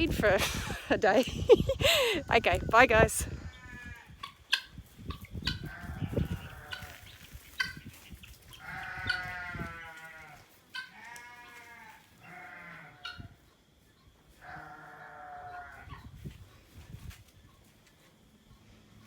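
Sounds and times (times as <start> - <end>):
farm animals bleating: 1.9 - 4.2, 5.5 - 7.6, 8.5 - 13.4, 14.3 - 16.1.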